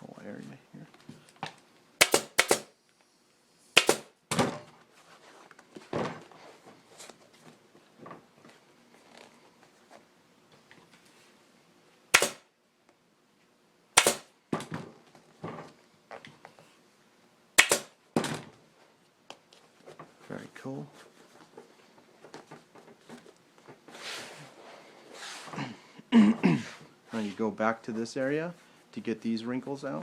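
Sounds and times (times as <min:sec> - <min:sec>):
staple gun firing: 0:02.0 - 0:02.7, 0:03.8 - 0:04.1, 0:12.2 - 0:12.5, 0:14.0 - 0:14.3, 0:17.6 - 0:17.9.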